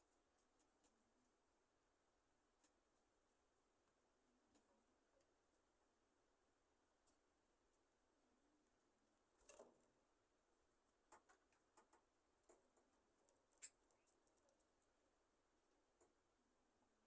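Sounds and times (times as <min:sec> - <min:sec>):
faint clicks and ticks: 0:02.5 - 0:05.8, 0:06.8 - 0:16.4.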